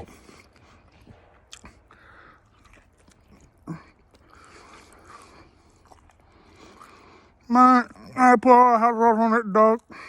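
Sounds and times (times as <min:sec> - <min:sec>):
person chewing food: 0:00.0 - 0:07.4.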